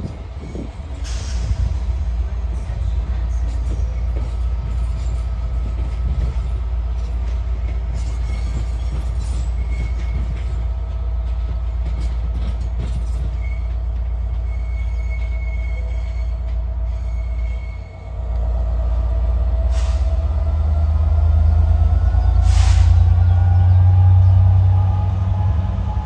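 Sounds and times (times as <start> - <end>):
train engine and rolling rumble: 0.0 - 26.0
train wheel squeals: 2.5 - 18.2.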